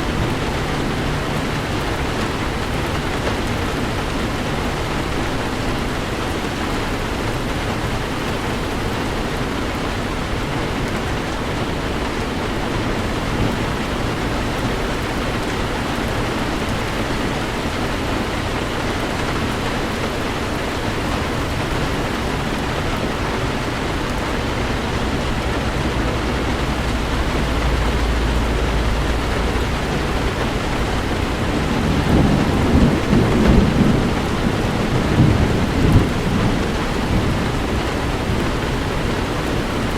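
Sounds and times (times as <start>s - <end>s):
heavy rain: 0.0s - 39.9s
rolling thunder: 12.5s - 39.9s.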